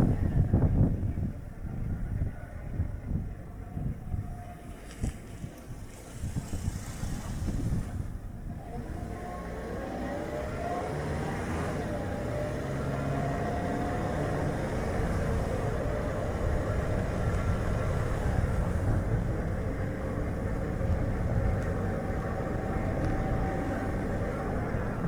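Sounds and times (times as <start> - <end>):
wind gusting on microphone: 0.0 - 25.0
tyre road noise: 4.9 - 25.0
car engine: 8.6 - 25.0.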